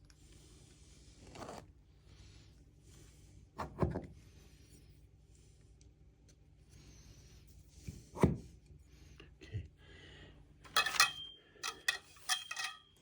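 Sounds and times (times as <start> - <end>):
metal bars clinking: 10.7 - 13.0.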